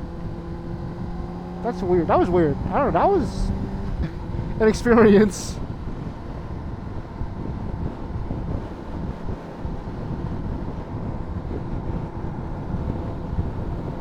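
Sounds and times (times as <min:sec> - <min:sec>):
motorcycle engine running: 0:00.0 - 0:05.0
wind buffeting microphone: 0:00.0 - 0:14.0.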